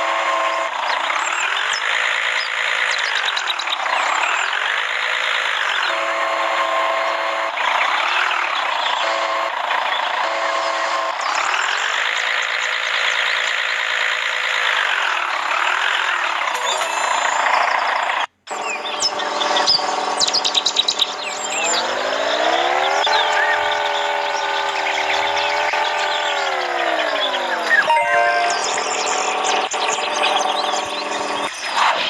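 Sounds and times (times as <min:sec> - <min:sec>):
crane electric motor whining: 0:14.8 - 0:27.8, 0:28.6 - 0:31.5
electronic beeping tones: 0:16.6 - 0:17.9, 0:27.7 - 0:29.3.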